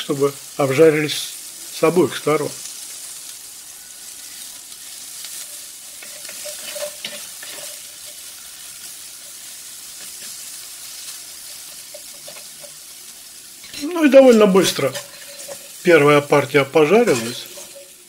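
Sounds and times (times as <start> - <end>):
food sizzling in oil: 0.0 - 18.0
spatula scraping and knocking pan: 5.2 - 8.4, 9.3 - 13.0, 13.6 - 15.9, 16.9 - 18.0.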